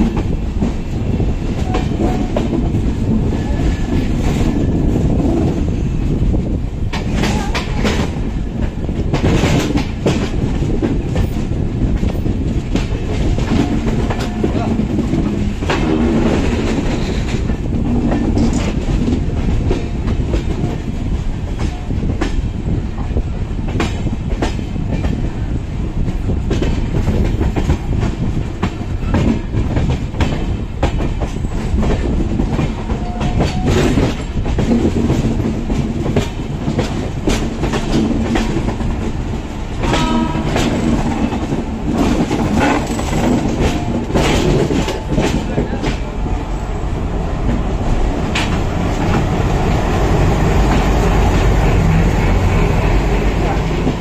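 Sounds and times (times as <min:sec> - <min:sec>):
train rumble: 0:00.0 - 0:54.0
wheels clattering over rail joints: 0:29.0 - 0:46.1.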